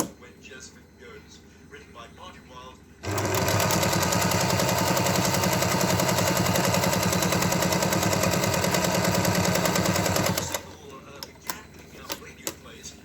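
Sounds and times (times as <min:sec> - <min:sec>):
sewing machine clattering: 0:03.0 - 0:10.7.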